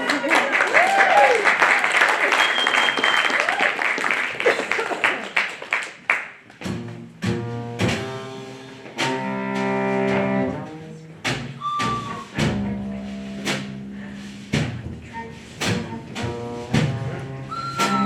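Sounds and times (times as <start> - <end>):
applause: 0.0 - 6.5
bowed string low notes: 6.6 - 18.0.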